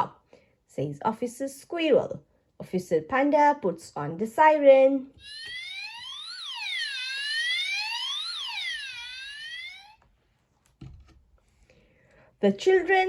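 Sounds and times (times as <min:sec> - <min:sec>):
electronic police siren wailing: 0:05.2 - 0:10.0.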